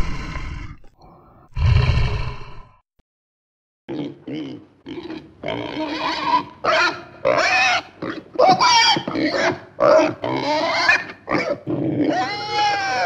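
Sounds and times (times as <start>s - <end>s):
pigs squealing: 3.9s - 13.0s.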